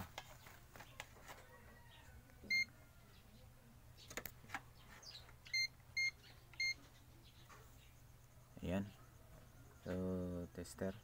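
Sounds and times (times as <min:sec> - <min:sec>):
multimeter short high beeps: 0:05.5 - 0:06.8.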